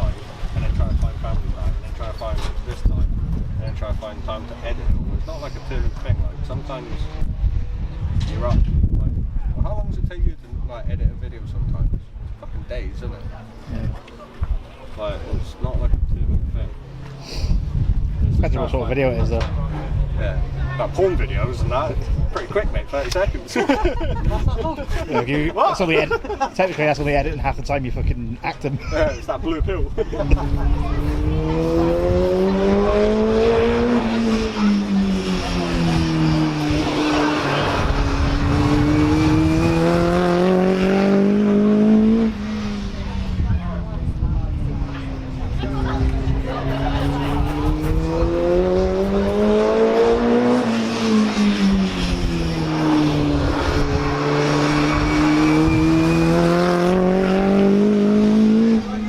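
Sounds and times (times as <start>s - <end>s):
race car engine accelerating: 0.0s - 9.1s, 30.1s - 59.0s.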